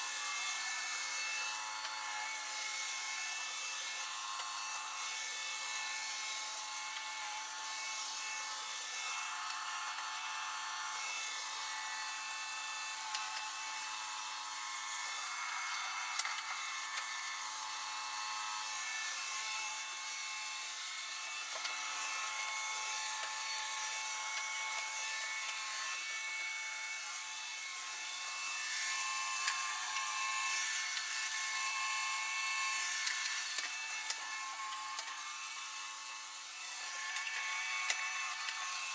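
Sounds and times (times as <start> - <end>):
robot vacuum whirring: 12.8 - 26.5, 27.6 - 38.9.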